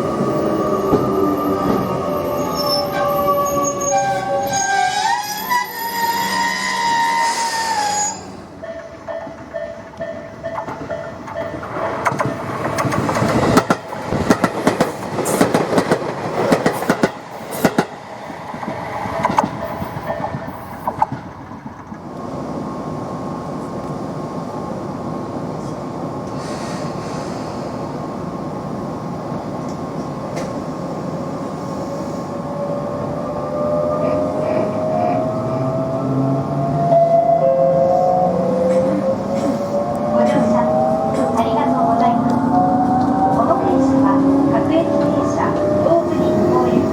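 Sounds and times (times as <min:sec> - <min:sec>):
train clattering over rail joints: 0:08.6 - 0:22.1, 0:38.6 - 0:46.9
electric train running: 0:32.6 - 0:46.9.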